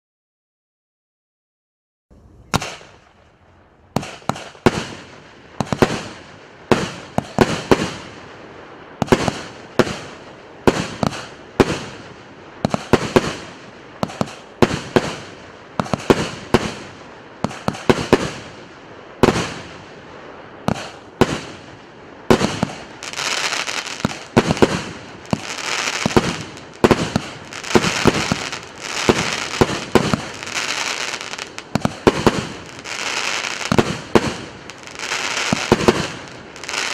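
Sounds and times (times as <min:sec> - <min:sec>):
dense firework crackling: 0:02.3 - 0:36.9
firework shots banging: 0:02.5 - 0:03.1, 0:12.6 - 0:18.5, 0:20.6 - 0:21.6, 0:22.3 - 0:36.9.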